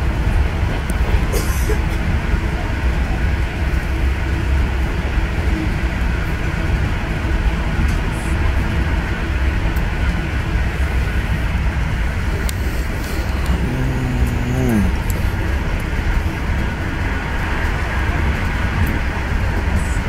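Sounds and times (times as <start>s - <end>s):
train wheels rumbling on track: 0.0s - 20.0s
short voice sound: 12.5s - 15.3s.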